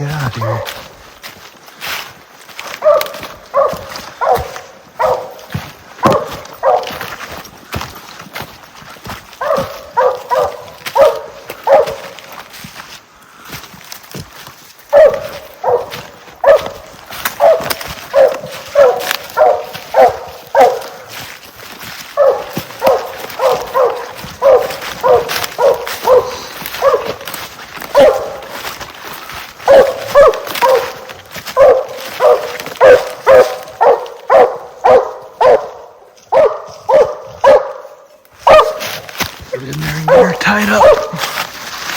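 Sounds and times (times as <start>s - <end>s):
dog barking: 2.7s - 7.4s, 9.4s - 12.2s, 14.9s - 21.3s, 21.9s - 28.8s, 29.6s - 41.4s.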